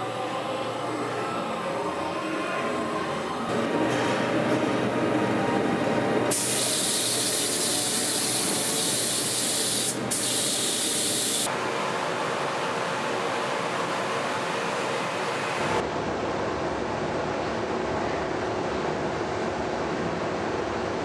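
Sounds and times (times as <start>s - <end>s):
loud spraying hiss: 6.3s - 11.5s.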